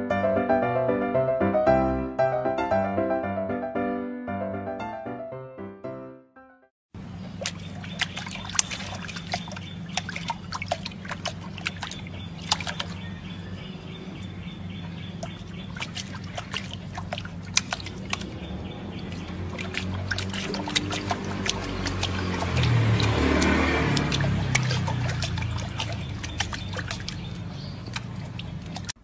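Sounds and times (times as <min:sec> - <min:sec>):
water splashing and dripping: 0:07.0 - 0:29.0.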